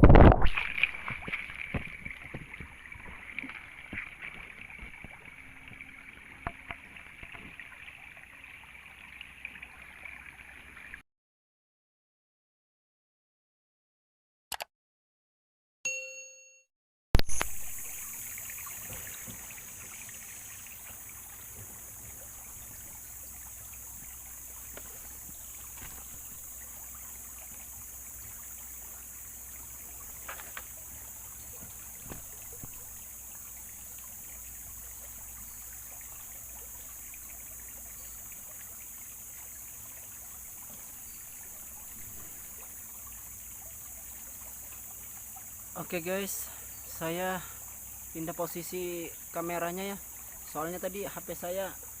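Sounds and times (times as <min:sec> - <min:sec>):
river water running: 0:00.4 - 0:11.0, 0:17.3 - 0:52.0
high-pitched insect drone: 0:17.3 - 0:52.0.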